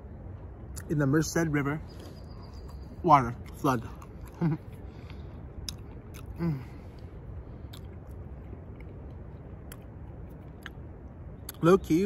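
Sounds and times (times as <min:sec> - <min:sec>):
person chewing cookie: 0:02.0 - 0:11.6
sharp mouth clicks: 0:03.4 - 0:11.6
short vocal sound: 0:06.2 - 0:06.9.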